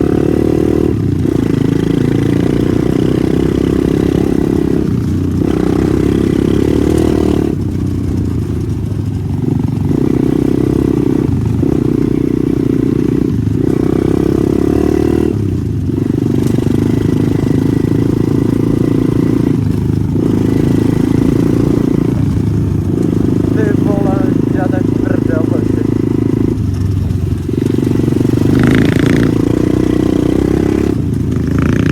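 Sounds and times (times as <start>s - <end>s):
small motorbike engine revving: 0.0s - 31.9s.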